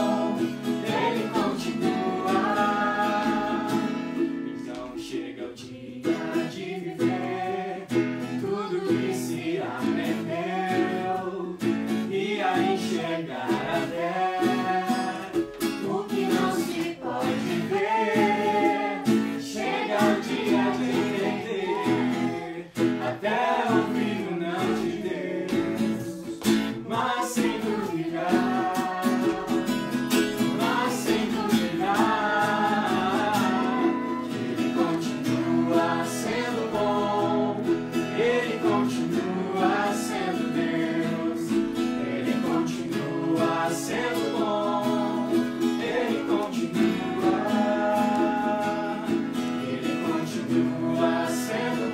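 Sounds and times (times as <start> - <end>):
strummed acoustic guitar: 0.0 - 51.9
voices singing: 0.0 - 51.9.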